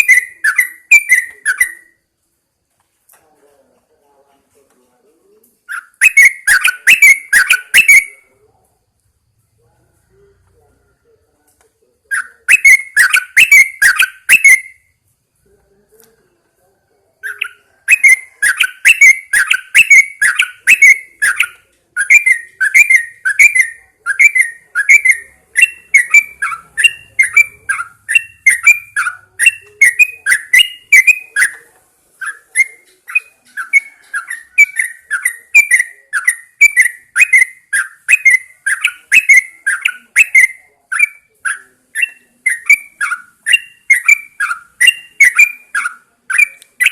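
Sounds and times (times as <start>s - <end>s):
bird singing repeated notes: 0.0s - 2.0s, 5.6s - 8.4s, 12.0s - 14.9s, 17.2s - 46.9s.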